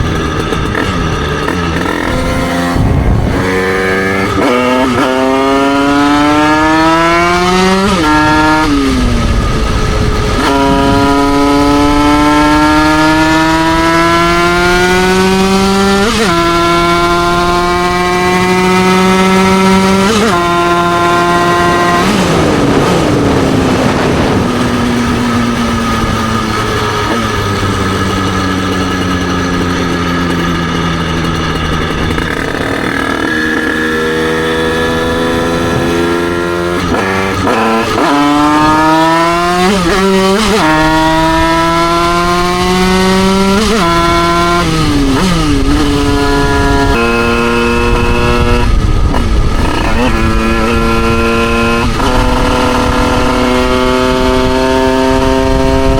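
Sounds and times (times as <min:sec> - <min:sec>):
two-stroke motorcycle engine: 0:00.0 - 0:55.9.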